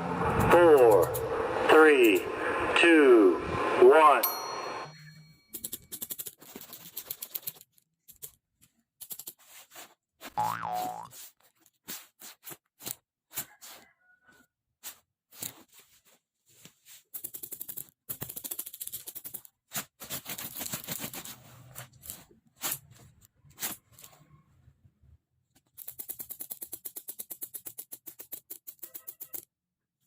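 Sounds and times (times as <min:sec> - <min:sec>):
rapid clicking and scratching: 0:00.3 - 0:01.2, 0:05.5 - 0:08.4, 0:09.0 - 0:09.7, 0:17.1 - 0:22.8, 0:25.6 - 0:29.5.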